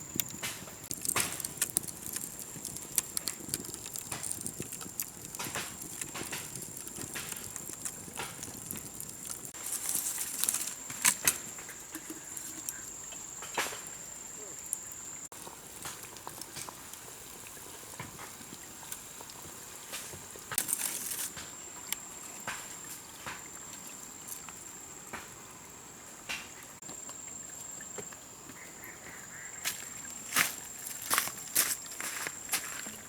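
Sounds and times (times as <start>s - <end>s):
leaves and twigs snapping: 0.0s - 12.8s, 20.0s - 22.7s
insects high-pitched whine: 9.6s - 15.3s, 20.7s - 33.0s.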